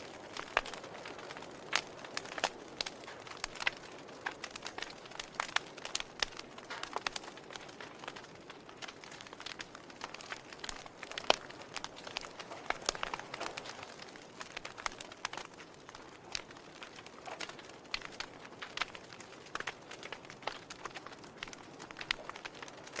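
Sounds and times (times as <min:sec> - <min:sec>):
fire crackling: 0:00.0 - 0:23.0.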